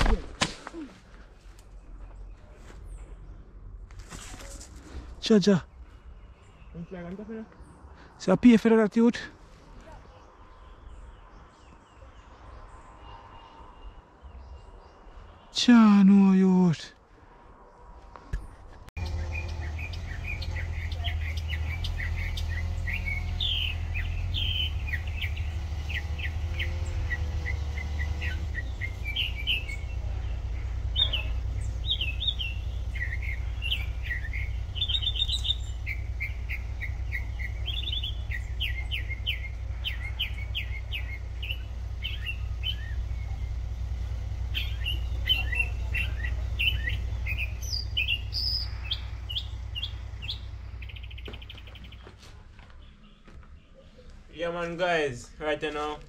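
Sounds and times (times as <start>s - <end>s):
songbird chirping and trilling: 1.4s - 16.8s, 19.0s - 56.0s
steady low rumble: 28.5s - 51.9s.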